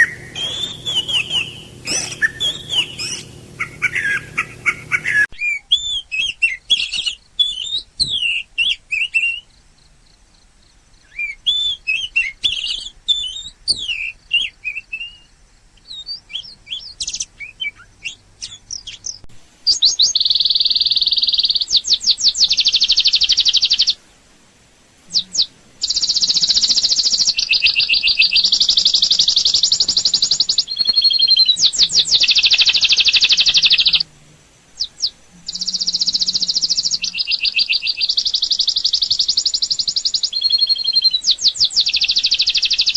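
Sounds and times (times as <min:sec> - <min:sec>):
birds chirping: 0:00.0 - 0:05.3, 0:25.1 - 0:42.9
loud fast bird trill: 0:00.0 - 0:05.3, 0:25.2 - 0:34.0, 0:34.8 - 0:42.9.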